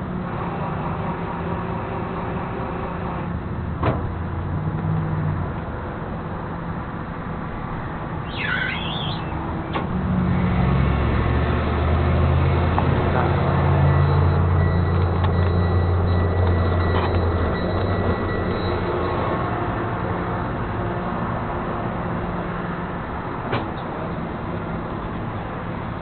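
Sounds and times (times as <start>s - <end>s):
tow truck engine running: 0.0s - 26.0s
bird chirp: 8.2s - 9.4s.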